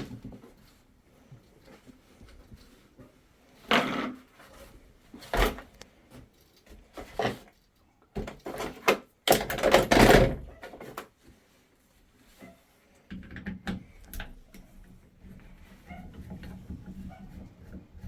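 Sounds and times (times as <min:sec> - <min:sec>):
rustling clatter of tools: 0:00.0 - 0:11.4.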